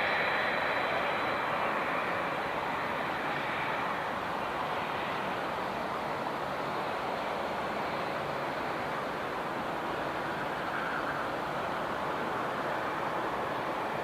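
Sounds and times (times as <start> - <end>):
thin high whine: 0.0 - 7.0
jet engines rushing: 0.0 - 14.0.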